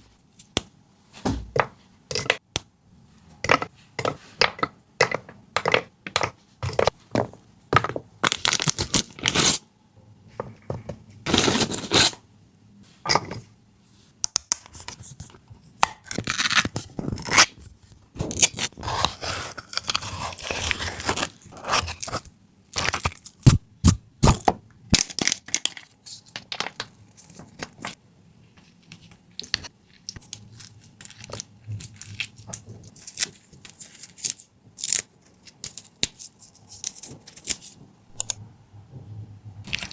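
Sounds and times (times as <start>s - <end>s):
hands tearing and scraping food: 18.3s - 26.0s, 29.3s - 38.3s.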